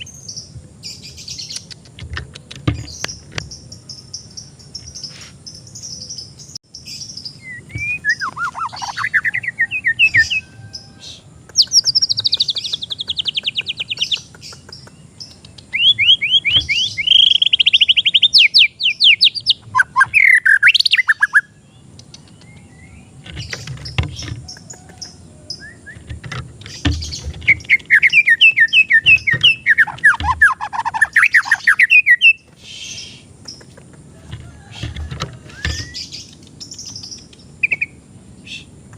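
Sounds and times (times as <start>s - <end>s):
songbird singing whistled phrases: 5.8s - 23.8s, 24.5s - 26.1s, 26.7s - 33.2s, 35.5s - 38.7s.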